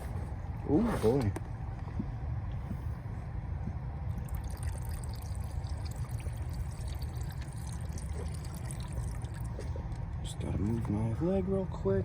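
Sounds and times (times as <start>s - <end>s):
steady low rumble: 0.0s - 12.0s
gasoline pouring into container: 4.2s - 9.6s.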